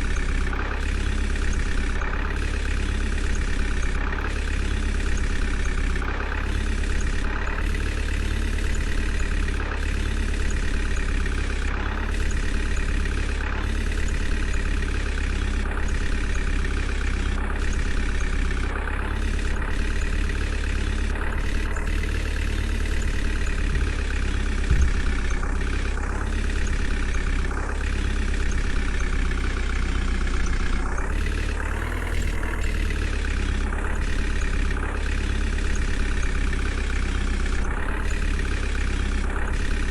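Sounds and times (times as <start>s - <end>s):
heavy diesel engine running: 0.0s - 39.9s
thump: 24.7s - 25.2s.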